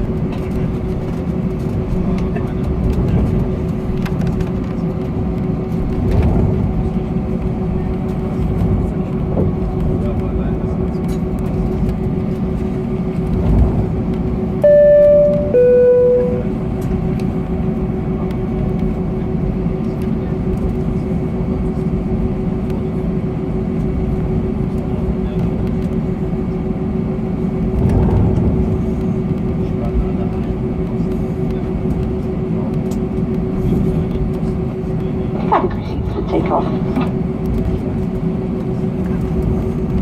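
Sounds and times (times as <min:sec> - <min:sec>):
aircraft cabin engine rumble and hum: 0:00.0 - 0:40.0
two-note cabin chime: 0:14.6 - 0:16.5.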